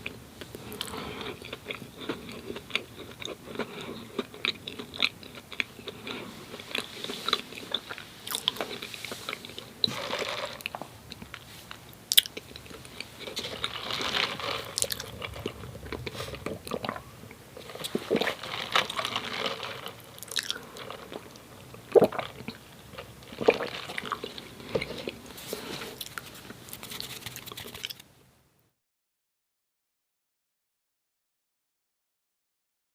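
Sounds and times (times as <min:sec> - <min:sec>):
chewing and biting: 0:00.7 - 0:11.5, 0:12.1 - 0:25.2
wet mouth noises: 0:20.2 - 0:25.2.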